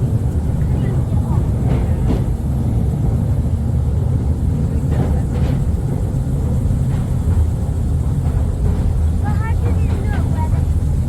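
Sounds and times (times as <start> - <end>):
train clattering: 0.0 - 11.0
train rumbling in tunnel: 0.0 - 11.0.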